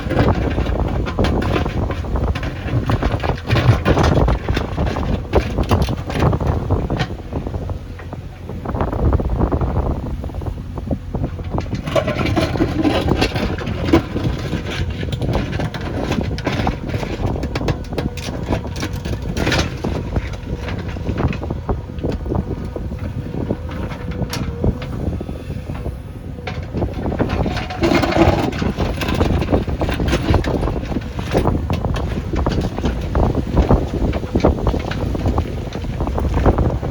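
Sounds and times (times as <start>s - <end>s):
short knocks and rattles: 0.0s - 7.2s
diesel engine running: 0.0s - 36.9s.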